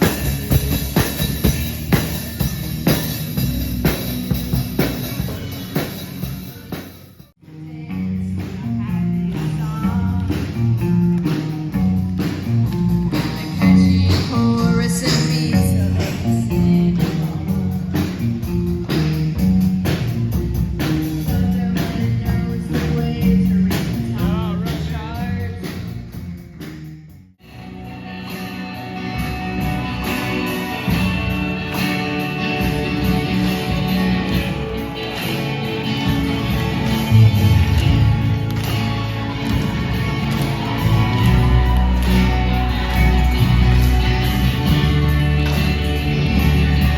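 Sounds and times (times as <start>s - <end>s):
rock band playing live: 0.0s - 46.9s
person singing: 7.4s - 10.7s, 13.1s - 18.2s, 21.2s - 25.8s.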